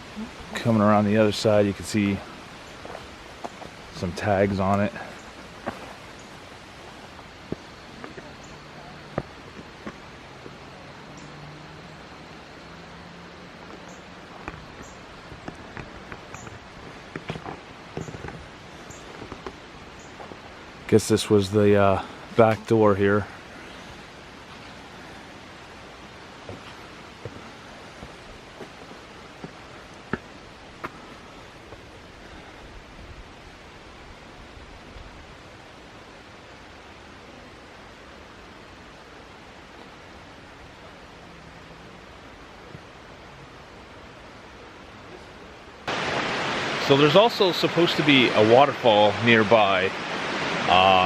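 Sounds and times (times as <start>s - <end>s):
creek rushing: 0.0s - 51.0s
steady background hiss: 0.0s - 51.0s
footsteps on rough ground: 2.2s - 8.4s, 9.1s - 10.6s, 13.6s - 20.5s, 26.4s - 31.9s.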